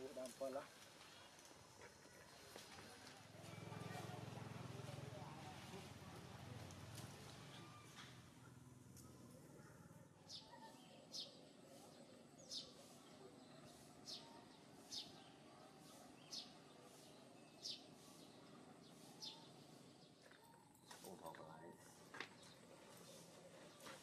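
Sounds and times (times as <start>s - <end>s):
faint bird chirping: 7.4s - 24.0s.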